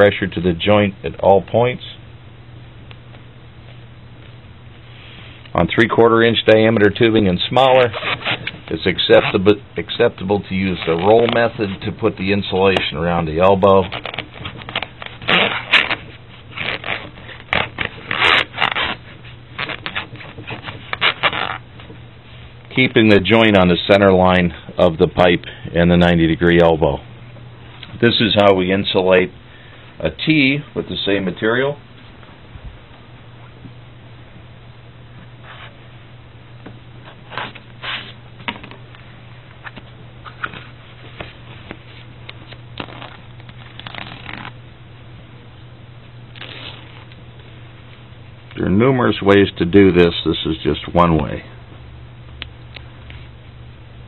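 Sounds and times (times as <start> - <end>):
low steady hum: 0.0 - 54.0
foam insulation rubbing and scraping: 7.4 - 12.6, 13.4 - 21.9.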